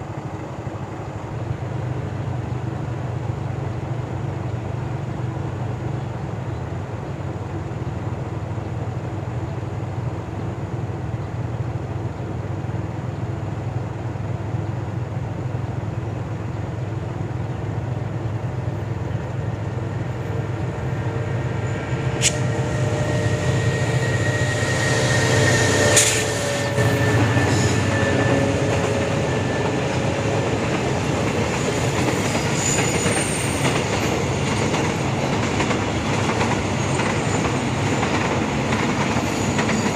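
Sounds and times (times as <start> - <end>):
train wheels rumbling on rails: 0.0 - 39.9
faint wheel squeal: 21.1 - 29.9
rail-joint clicks: 21.7 - 23.4, 25.3 - 39.9.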